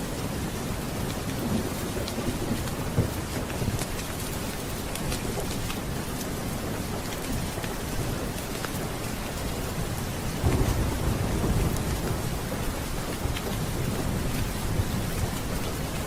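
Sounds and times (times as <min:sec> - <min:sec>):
steady rain: 0:00.0 - 0:16.0
thunder rumbling: 0:09.7 - 0:16.0.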